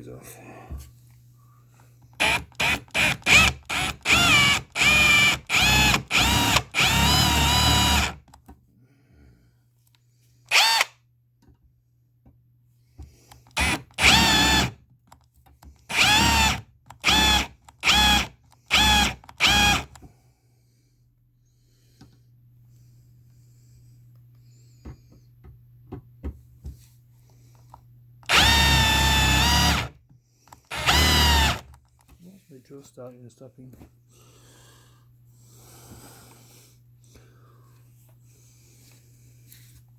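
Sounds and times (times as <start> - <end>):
cordless drill drilling metal: 2.2 - 8.3, 10.5 - 10.9, 13.5 - 14.8, 15.9 - 20.0, 28.2 - 30.0, 30.7 - 31.8.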